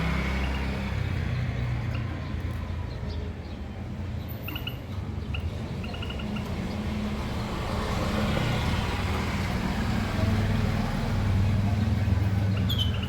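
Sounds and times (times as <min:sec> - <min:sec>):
finches chirping: 0:04.4 - 0:06.8, 0:11.7 - 0:13.0.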